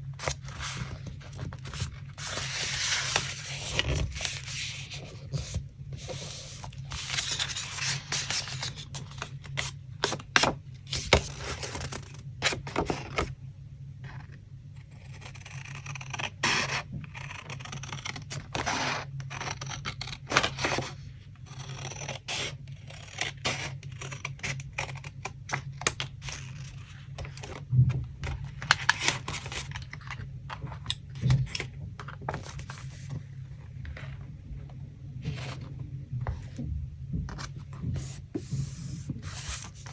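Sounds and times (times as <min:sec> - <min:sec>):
steady low hum: 0:00.0 - 0:39.9
paper scraping and rustling: 0:00.1 - 0:13.3, 0:26.0 - 0:34.3, 0:35.2 - 0:36.6, 0:37.3 - 0:39.9.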